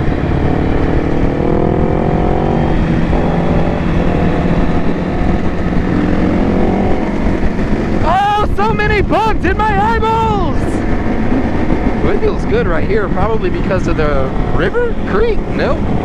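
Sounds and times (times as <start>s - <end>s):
motorcycle engine accelerating: 0.0s - 8.1s
wind rumble on microphone: 0.0s - 16.0s.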